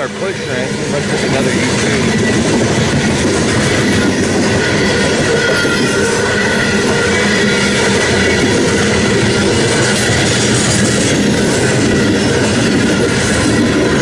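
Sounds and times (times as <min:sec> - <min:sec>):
train wheels rumbling on rails: 0:00.0 - 0:14.0
faint high wheel squeal: 0:03.5 - 0:14.0.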